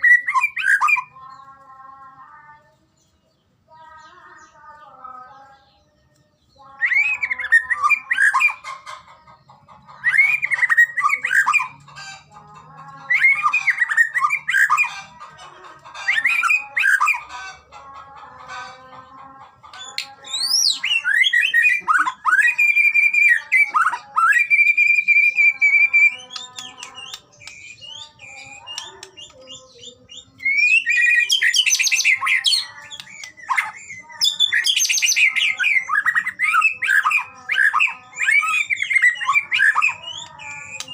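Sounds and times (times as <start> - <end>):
songbird singing whistles and trills: 0.0 - 1.2, 5.5 - 9.0, 9.9 - 12.2, 13.1 - 15.0, 15.9 - 17.4, 19.6 - 40.9.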